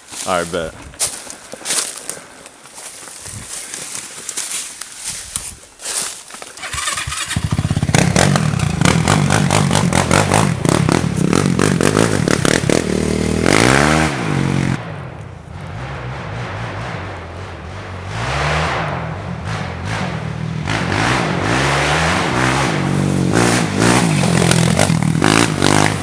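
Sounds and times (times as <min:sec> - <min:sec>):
atv engine revving: 0:06.6 - 0:26.0.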